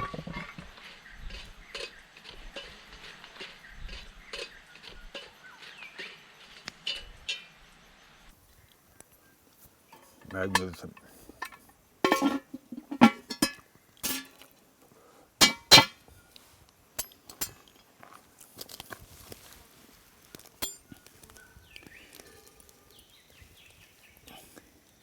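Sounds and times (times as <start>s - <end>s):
metal utensils clinking on pan: 9.9s - 14.4s, 15.4s - 16.0s, 17.0s - 17.8s, 20.6s - 21.0s.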